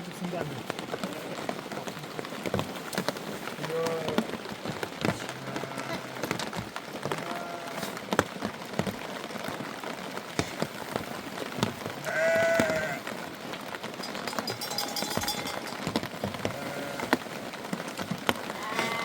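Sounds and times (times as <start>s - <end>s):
rain patter with drop ticks: 0.0s - 19.0s
sheep or goat bleating: 5.2s - 6.4s, 7.1s - 8.0s, 12.0s - 13.1s, 16.4s - 17.2s, 18.6s - 19.0s.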